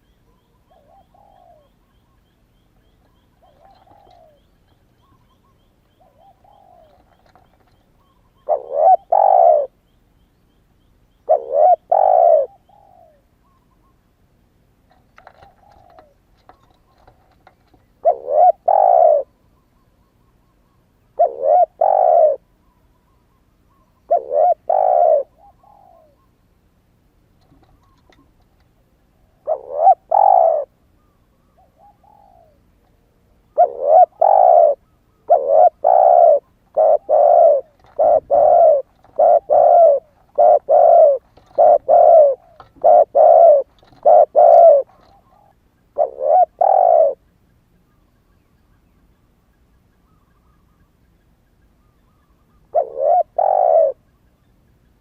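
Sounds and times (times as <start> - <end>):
dove cooing: 0.0 - 2.3, 2.9 - 9.8, 11.2 - 13.3, 14.9 - 19.4, 21.1 - 22.5, 23.7 - 26.3, 29.2 - 32.8, 33.4 - 47.3, 51.9 - 54.1.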